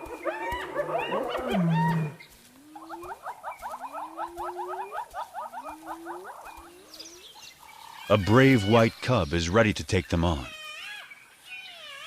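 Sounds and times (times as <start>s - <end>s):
loud low hyena call: 0.1s - 2.2s.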